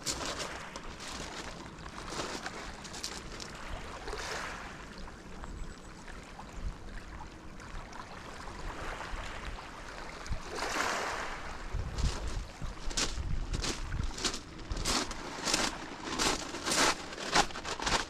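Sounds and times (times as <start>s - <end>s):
sea water washing on shore: 0.0s - 5.3s, 6.2s - 18.0s.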